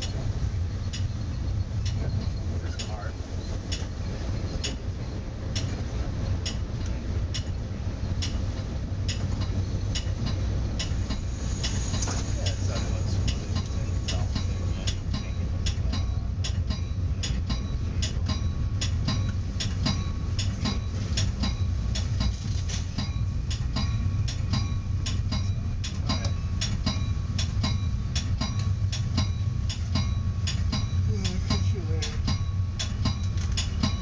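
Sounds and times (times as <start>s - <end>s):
train rumbling on rails: 0.0s - 34.0s
sharp metallic ticks: 0.8s - 3.0s, 9.0s - 34.0s.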